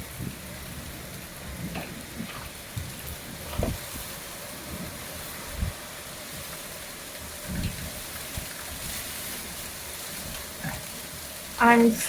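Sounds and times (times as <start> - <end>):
heavy rain and hail: 0.0 - 12.0.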